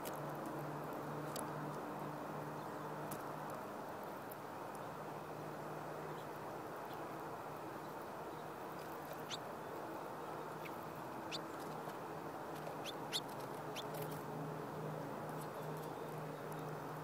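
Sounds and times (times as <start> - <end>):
small birds chip calls: 6.0 - 14.4, 15.2 - 17.0.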